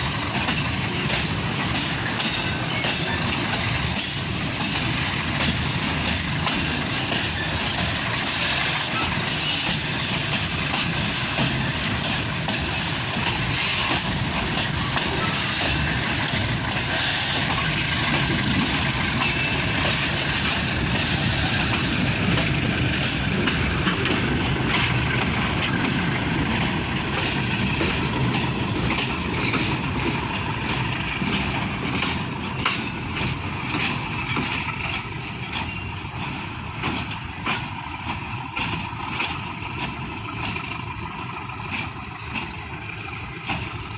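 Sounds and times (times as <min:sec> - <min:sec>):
freight train rumbling and rattling: 0:00.0 - 0:43.9
train wheel clicks: 0:00.0 - 0:43.9.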